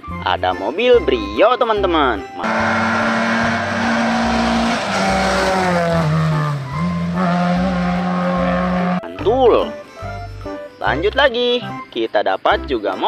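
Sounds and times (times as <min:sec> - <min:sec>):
car engine: 0:02.4 - 0:09.0
music with low beat: 0:02.4 - 0:11.2.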